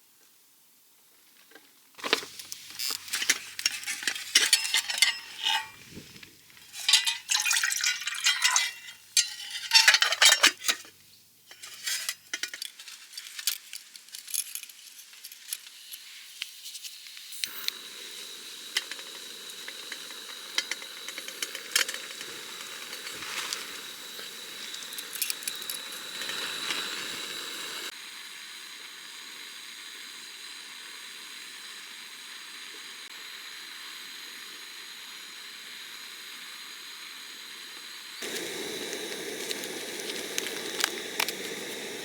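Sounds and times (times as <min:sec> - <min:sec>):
steady hiss with high tone: 0:02.0 - 0:42.0
metal cookware clattering: 0:03.2 - 0:05.9, 0:06.6 - 0:10.9, 0:11.5 - 0:12.8.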